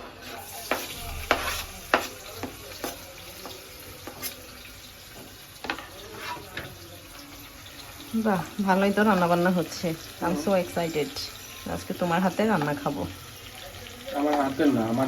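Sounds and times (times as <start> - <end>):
onions sizzling in hot oil: 0.0 - 15.0
utensil knocking against pan: 0.6 - 4.3.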